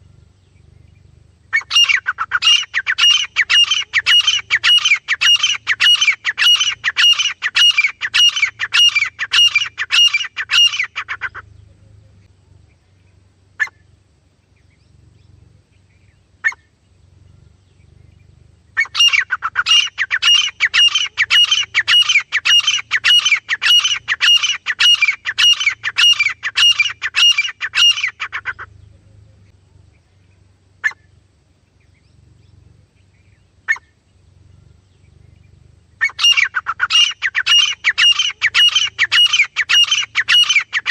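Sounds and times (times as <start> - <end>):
francolin calling shrill notes: 1.6 - 11.3, 18.8 - 28.6, 36.0 - 40.9.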